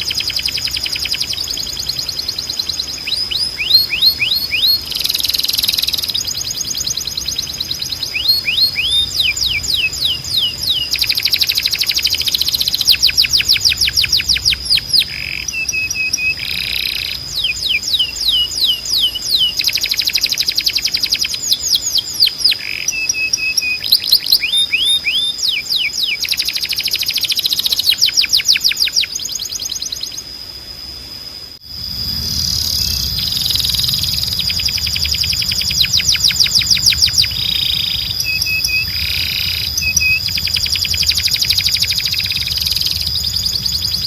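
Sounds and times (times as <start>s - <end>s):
steady high whine: 0.0s - 20.9s, 30.0s - 44.0s
canary singing trills: 0.0s - 30.4s, 31.7s - 44.0s.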